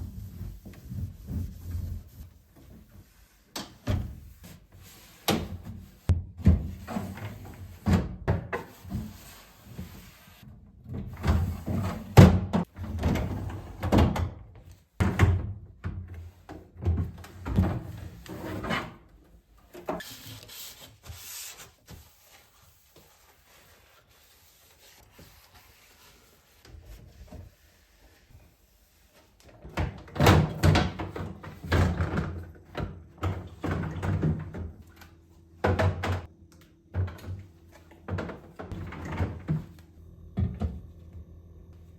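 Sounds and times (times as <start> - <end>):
kitchen containers knocking and clattering: 35.6 - 36.3.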